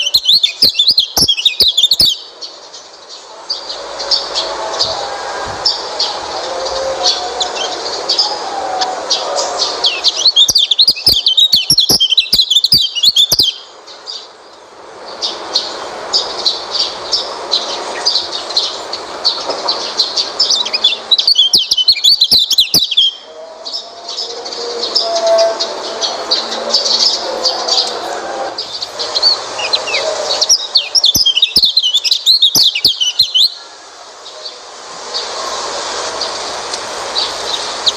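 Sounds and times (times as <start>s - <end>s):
high quick bird chirps: 0.0s - 2.2s, 9.9s - 13.6s, 20.4s - 23.3s, 28.6s - 33.5s
fast twittering birdsong: 0.0s - 37.9s.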